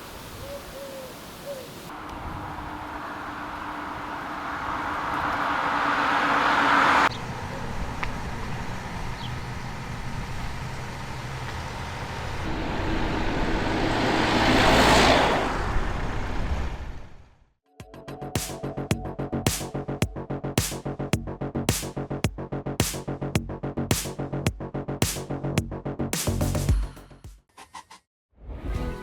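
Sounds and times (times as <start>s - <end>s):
road vehicle passing: 1.9s - 17.4s.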